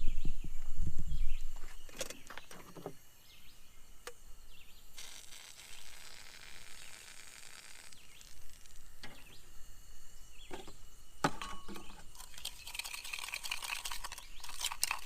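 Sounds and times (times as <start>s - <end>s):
small birds chirping: 0.0s - 15.0s
steady high hiss: 0.0s - 15.0s
spoon beating sugar in cup: 11.3s - 15.0s.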